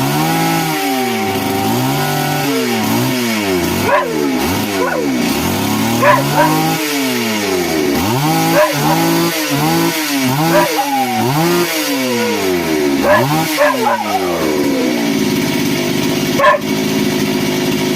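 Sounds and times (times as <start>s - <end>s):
small engine revving and idling: 0.0s - 17.9s.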